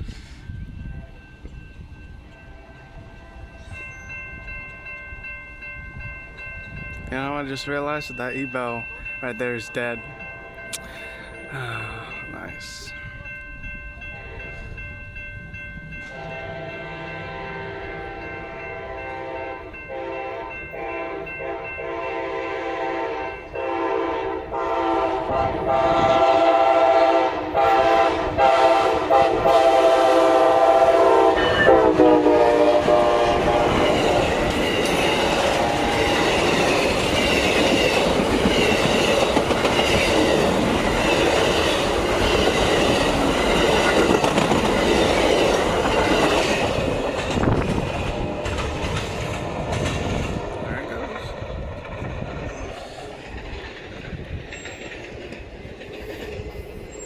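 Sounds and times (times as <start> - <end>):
train cars rumbling: 0.0 - 57.0
train horn blasts: 2.4 - 3.8, 14.1 - 14.7, 16.1 - 34.6, 35.3 - 36.2
wheels clacking on rail joints: 27.5 - 57.0.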